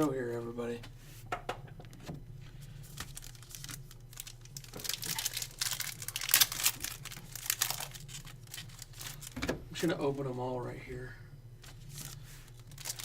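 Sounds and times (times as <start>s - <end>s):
wrappers crinkling and tearing: 2.6s - 9.4s, 11.6s - 13.0s.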